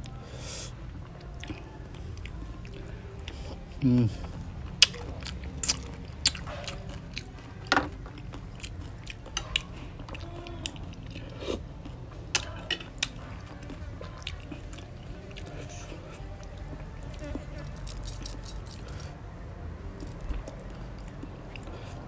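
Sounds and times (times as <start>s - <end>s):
chewing and biting: 1.0s - 18.9s, 20.0s - 22.0s.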